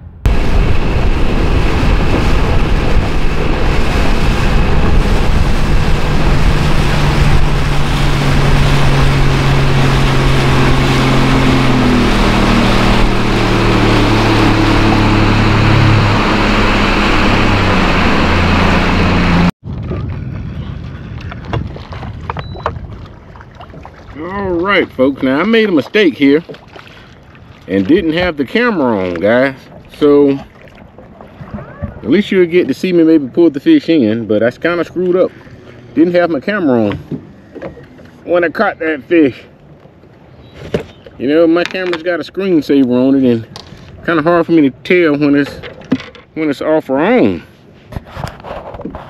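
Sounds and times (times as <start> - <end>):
wind on microphone: 0.0 - 25.0, 30.8 - 32.1
water: 0.0 - 49.0
outboard engine running: 0.3 - 46.4.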